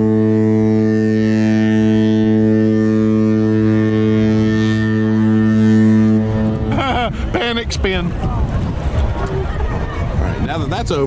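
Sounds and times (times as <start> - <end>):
deep ship horn blast: 0.0 - 7.4.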